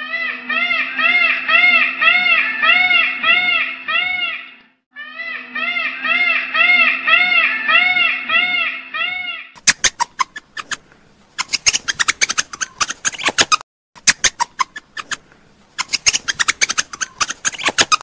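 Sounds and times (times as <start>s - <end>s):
repeated pitched call: 0.0s - 10.5s.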